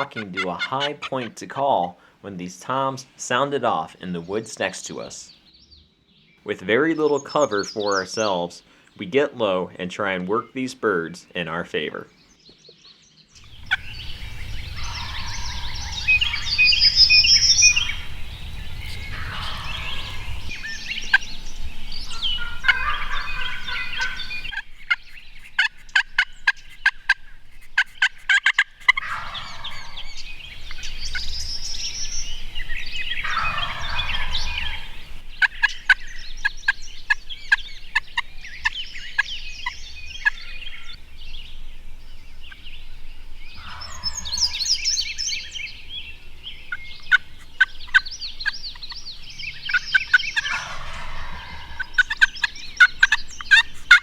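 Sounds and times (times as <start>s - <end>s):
turkeys gobbling: 0.0s - 2.1s, 13.4s - 21.4s, 22.0s - 31.2s, 33.1s - 36.1s, 43.6s - 44.7s, 46.7s - 49.0s, 49.6s - 54.0s.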